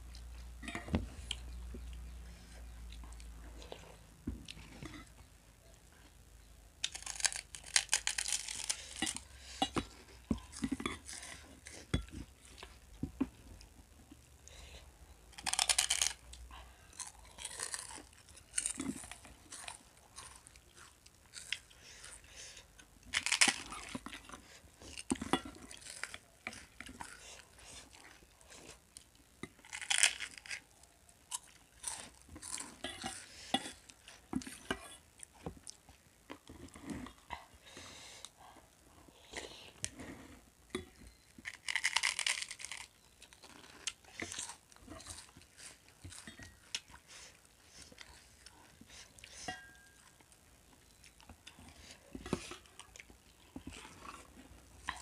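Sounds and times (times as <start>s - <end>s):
crunching crisp snacks: 6.8s - 9.6s, 15.3s - 28.1s, 28.9s - 34.6s, 41.1s - 48.6s.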